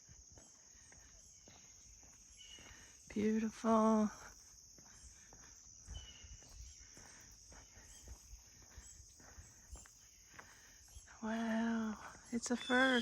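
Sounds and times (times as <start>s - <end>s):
crickets chirring: 0.0s - 13.0s
soft footsteps: 4.8s - 11.1s.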